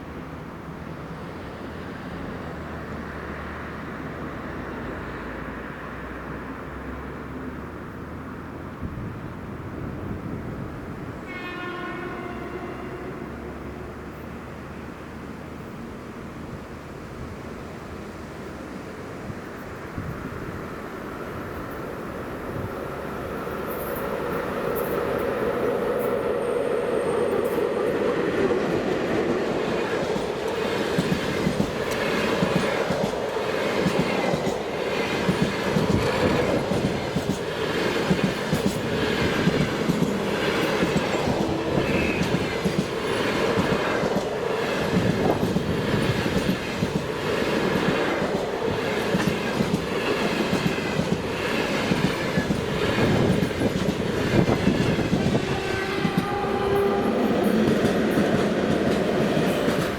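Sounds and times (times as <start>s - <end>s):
train wheels clacking over rail joints: 28.5s - 59.9s.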